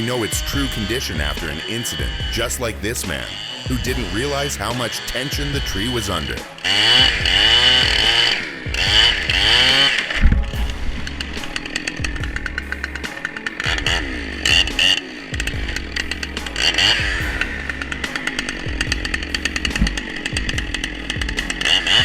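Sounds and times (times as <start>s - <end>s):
chainsaw revving: 0.0s - 22.0s.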